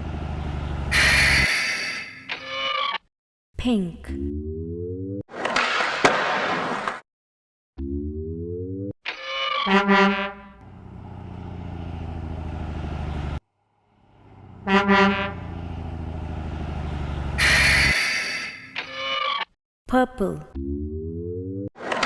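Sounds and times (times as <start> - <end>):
truck engine running: 0.0 - 1.5, 10.6 - 18.0
truck horn honking: 0.7 - 2.2, 9.6 - 10.7, 14.2 - 15.9, 17.1 - 18.6.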